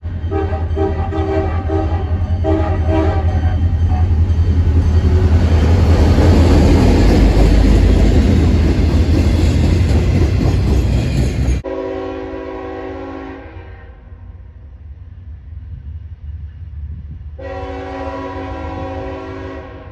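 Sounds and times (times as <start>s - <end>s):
train rumbling past: 0.0s - 19.9s
train air horn blasts: 0.3s - 4.2s, 11.6s - 14.3s, 17.4s - 19.9s.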